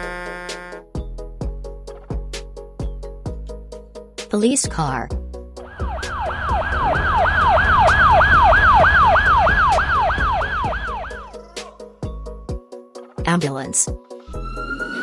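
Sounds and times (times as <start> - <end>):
low vehicle rumble: 5.6 - 11.4
police siren yelping: 5.7 - 11.8.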